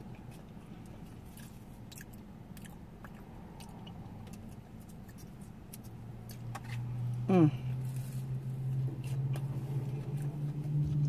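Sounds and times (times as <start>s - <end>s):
chewing with wet mouth clicks: 0.0s - 6.9s.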